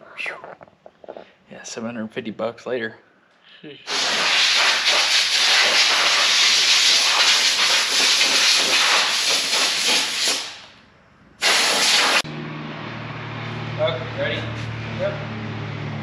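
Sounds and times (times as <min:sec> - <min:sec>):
pressurised spray hissing: 0:03.9 - 0:10.7, 0:11.4 - 0:12.2.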